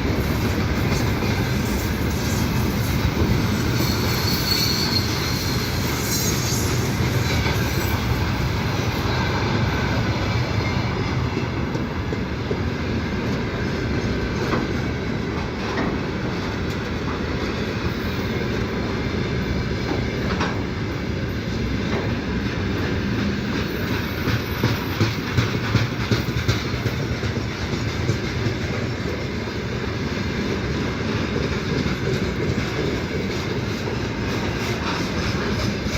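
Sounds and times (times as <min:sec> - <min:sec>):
freight train rumbling past: 0:00.0 - 0:35.9
wheels clacking over rail joints: 0:21.9 - 0:35.9.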